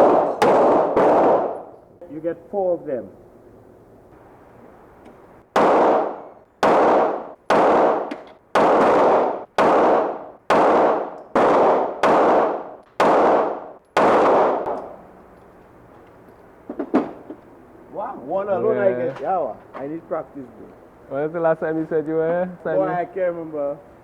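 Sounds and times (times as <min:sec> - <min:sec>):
echoing gunshots: 0:00.0 - 0:01.8, 0:05.5 - 0:15.1.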